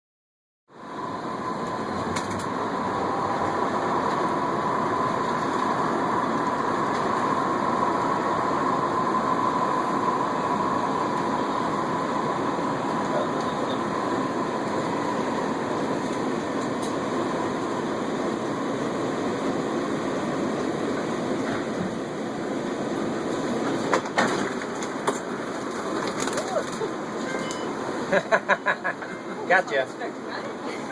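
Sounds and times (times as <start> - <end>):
transit vehicle running rumble: 0.7 - 30.9
thin whine: 0.8 - 22.9.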